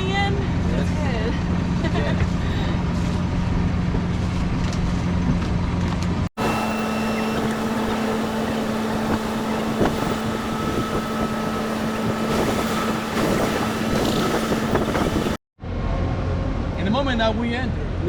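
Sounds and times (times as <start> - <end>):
steady engine drone: 0.0 - 18.0
wind blowing on microphone: 6.4 - 15.4.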